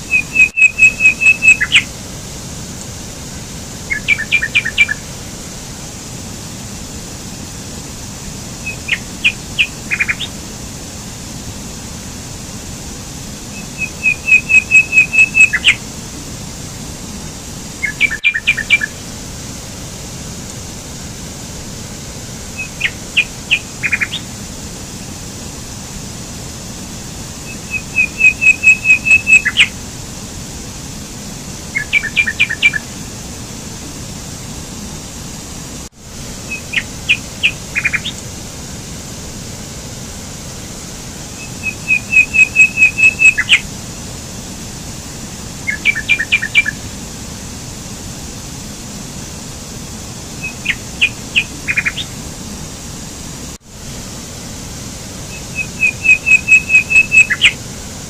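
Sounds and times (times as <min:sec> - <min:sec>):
mountain stream rushing: 0:00.0 - 0:58.0
songbird chirping: 0:00.1 - 0:01.9, 0:03.9 - 0:05.0, 0:08.6 - 0:10.4, 0:13.5 - 0:15.8, 0:17.8 - 0:19.0, 0:22.6 - 0:24.3, 0:27.4 - 0:29.7, 0:31.7 - 0:32.9, 0:36.5 - 0:38.2, 0:41.4 - 0:43.6, 0:45.7 - 0:46.8, 0:50.4 - 0:52.1, 0:55.3 - 0:57.6.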